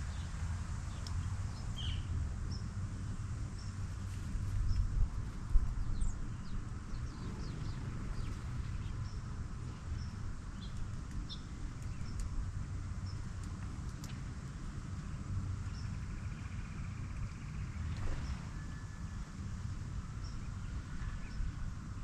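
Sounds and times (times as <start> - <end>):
low outdoor rumble: 0.0 - 22.0
wild birds chirping: 0.9 - 2.8, 5.7 - 13.4.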